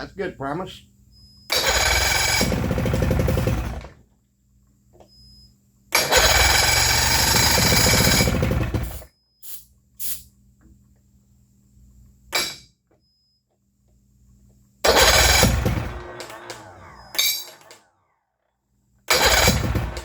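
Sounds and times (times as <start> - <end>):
outboard motor running: 14.9 - 17.2, 19.2 - 20.0.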